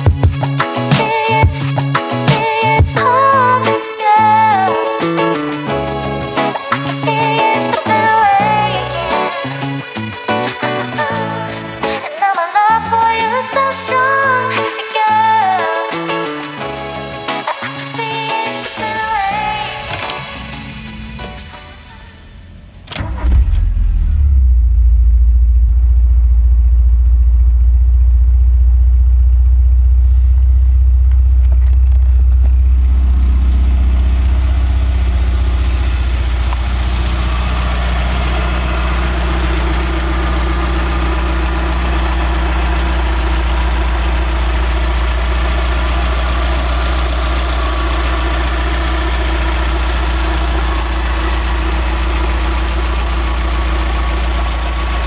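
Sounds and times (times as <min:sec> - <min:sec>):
car engine starting and idling: 0:17.9 - 0:55.0.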